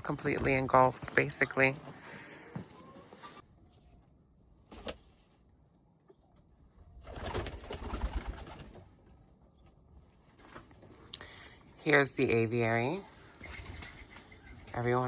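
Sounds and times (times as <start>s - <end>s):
pigeons cooing: 13.4s - 14.9s.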